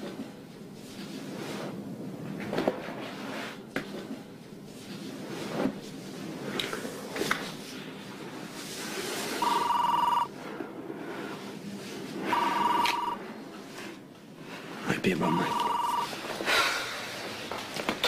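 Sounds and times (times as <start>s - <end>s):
electronic telephone ring: 9.4s - 10.3s, 12.3s - 13.3s, 15.3s - 16.1s.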